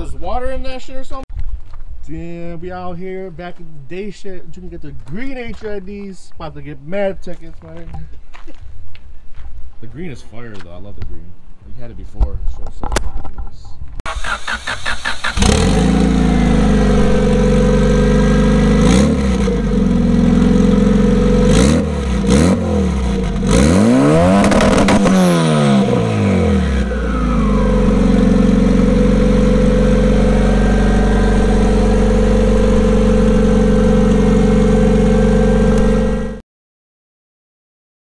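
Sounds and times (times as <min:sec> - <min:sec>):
car engine idling and revving: 0:14.1 - 0:36.4.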